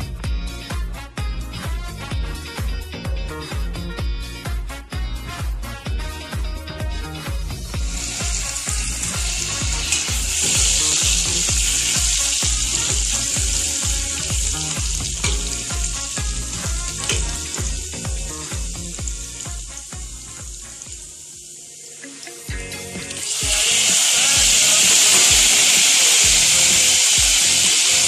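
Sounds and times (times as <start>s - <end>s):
background music with steady beat: 0.0s - 28.0s
food sizzling in hot oil: 7.7s - 28.0s.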